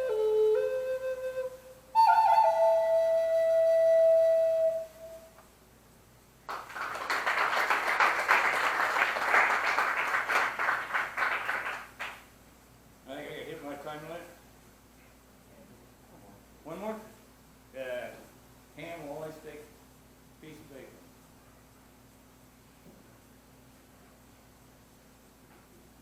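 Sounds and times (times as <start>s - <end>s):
flute playing: 0.0s - 5.4s
audience applauding: 6.5s - 12.2s.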